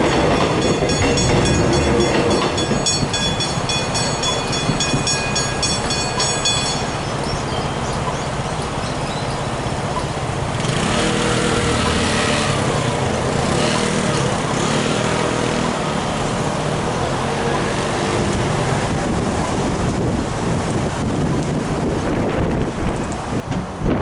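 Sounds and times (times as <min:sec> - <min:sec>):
level crossing bells ringing: 0:00.0 - 0:08.2
passing train rumble: 0:00.0 - 0:24.0
road traffic rushing: 0:00.0 - 0:24.0.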